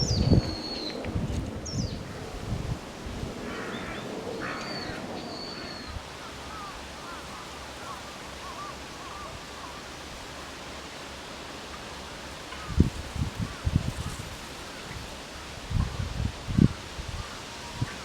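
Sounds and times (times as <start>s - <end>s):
thin high bird whistles: 0.0s - 1.0s
steady background hiss: 0.0s - 18.0s.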